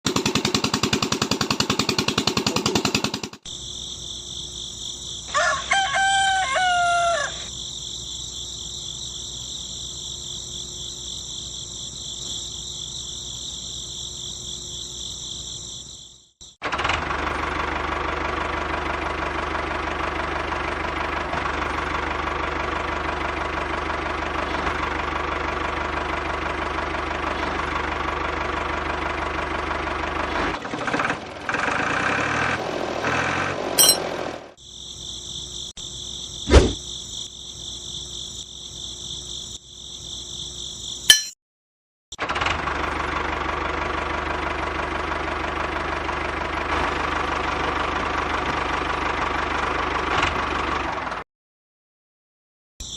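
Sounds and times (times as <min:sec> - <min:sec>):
knocking engine running: 0:00.1 - 0:03.5.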